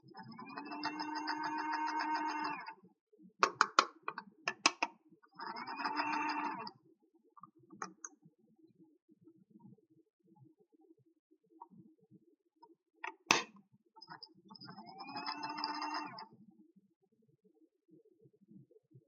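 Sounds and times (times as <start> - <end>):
battery toy buzzing: 0.4 - 2.7, 5.4 - 6.7
sharp plastic clicks: 3.4 - 4.9, 13.0 - 13.5.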